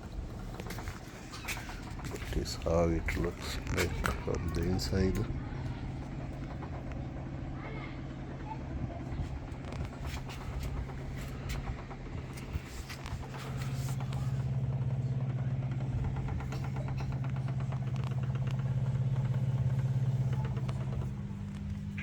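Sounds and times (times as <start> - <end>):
drain pump humming: 0.0 - 22.0.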